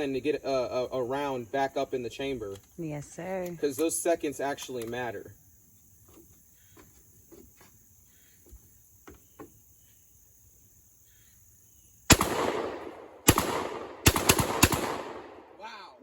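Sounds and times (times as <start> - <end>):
faint handling clicks: 4.5 - 5.0
shotgun shots echoing: 12.1 - 15.8.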